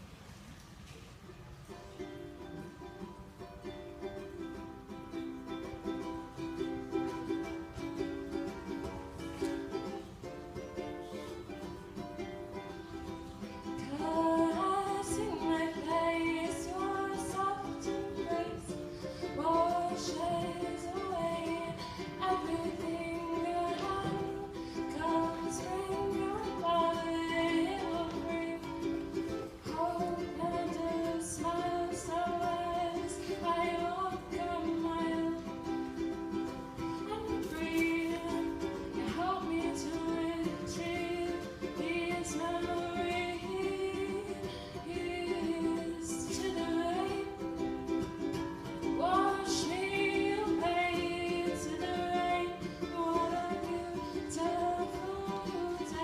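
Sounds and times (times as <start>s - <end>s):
plucked acoustic string instrument: 0.0s - 56.0s
woman singing: 2.0s - 56.0s.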